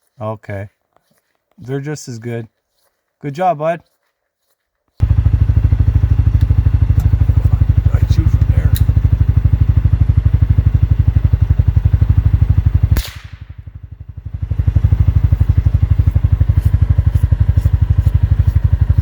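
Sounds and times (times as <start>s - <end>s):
vehicle engine idling: 5.0s - 19.0s
gunshot: 12.9s - 13.6s.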